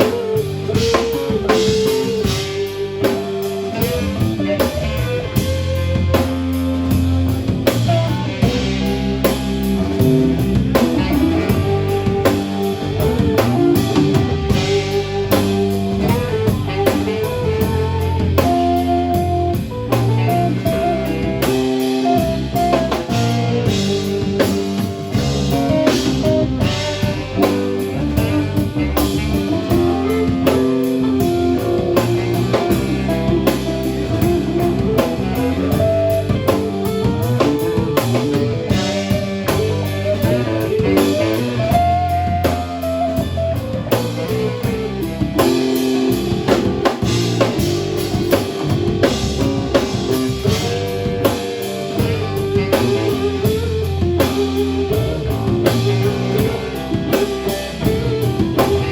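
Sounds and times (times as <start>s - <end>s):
bass: 0.0s - 58.9s
drum kit beat: 0.0s - 58.9s
electric guitar melody: 0.0s - 58.9s.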